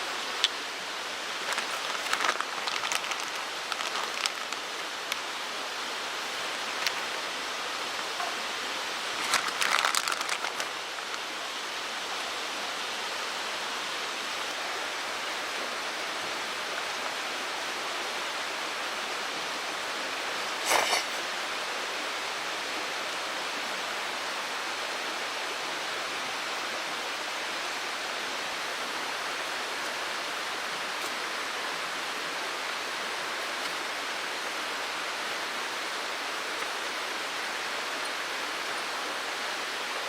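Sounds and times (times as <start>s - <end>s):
stream water rushing: 0.0s - 40.0s
small clicks and rustles: 1.4s - 5.3s, 9.1s - 11.3s.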